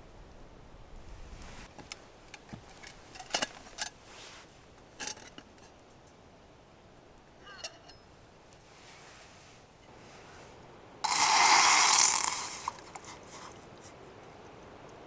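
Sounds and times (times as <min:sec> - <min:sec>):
wind rumble on microphone: 0:00.0 - 0:01.7
cookware and utensils clinking: 0:07.4 - 0:08.1.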